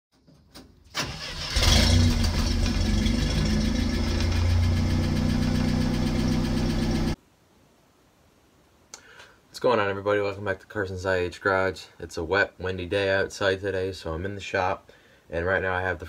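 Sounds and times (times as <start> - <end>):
engine cranking: 1.0 - 7.2
engine idling: 1.2 - 7.2.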